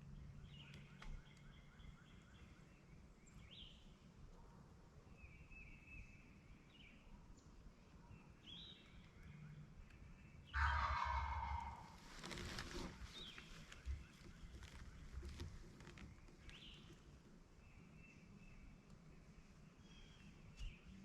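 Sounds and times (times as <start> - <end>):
small birds chirping: 0.0 - 4.3, 5.0 - 21.0
turkey gobbling: 10.6 - 12.1.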